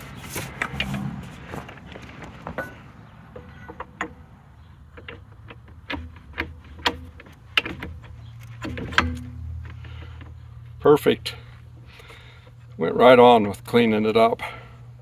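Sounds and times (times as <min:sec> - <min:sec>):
metal clicks and clanks: 0:00.0 - 0:10.9.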